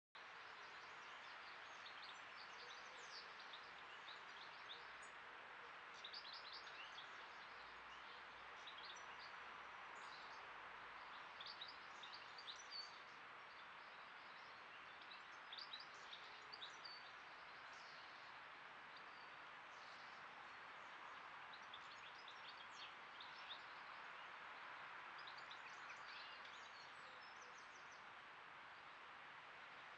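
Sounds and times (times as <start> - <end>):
microphone hiss: 0.2 - 29.9.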